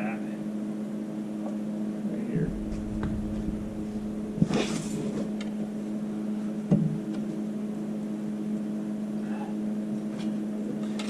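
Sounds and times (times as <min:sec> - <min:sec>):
engine idling: 0:02.2 - 0:06.3.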